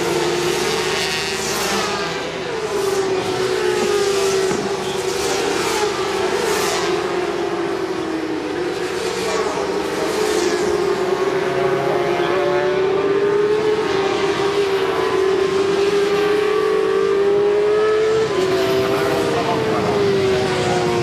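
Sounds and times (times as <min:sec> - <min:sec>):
racing motorcycles at high revs: 0:00.0 - 0:21.0.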